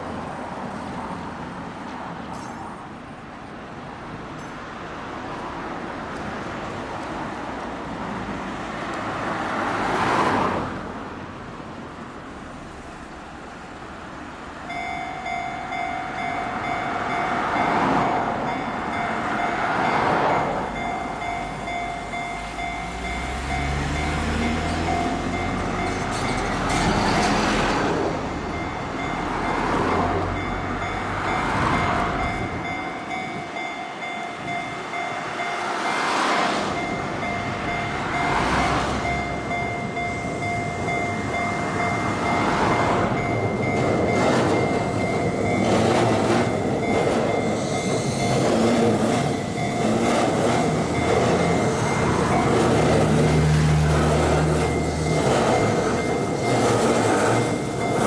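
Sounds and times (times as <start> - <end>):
electric train rumbling: 0.0 - 58.0
road traffic passing: 0.0 - 58.0
steady high tone: 14.7 - 58.0.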